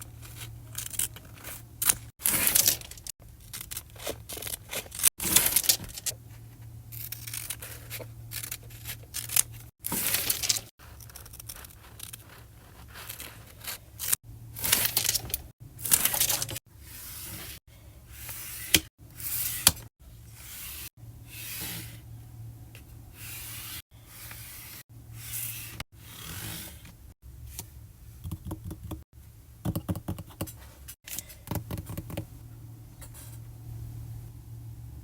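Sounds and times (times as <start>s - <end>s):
paper rustling and peeling: 0.1s - 6.2s, 7.0s - 16.6s.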